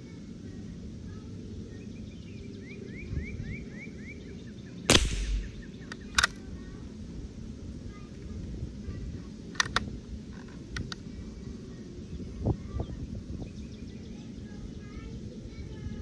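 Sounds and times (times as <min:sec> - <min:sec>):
rifle shot: 0:04.9 - 0:06.3
sharp clicks: 0:04.9 - 0:06.3.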